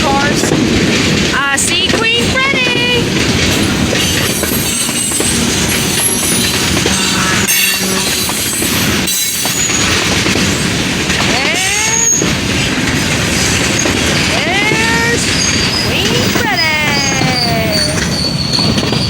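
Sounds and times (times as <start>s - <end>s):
train wheels rumbling on rails: 0.0s - 19.0s
high-pitched wheel squeals: 3.9s - 10.1s, 15.4s - 19.0s.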